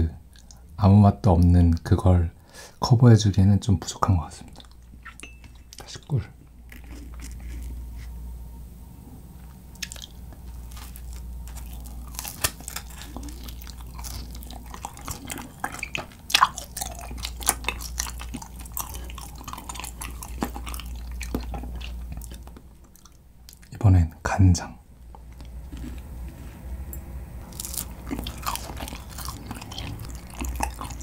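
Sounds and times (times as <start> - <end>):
low steady hum: 0.0 - 31.0
chewing with sticky mouth clicks: 0.3 - 0.6, 4.4 - 7.8, 9.7 - 23.7, 27.4 - 31.0.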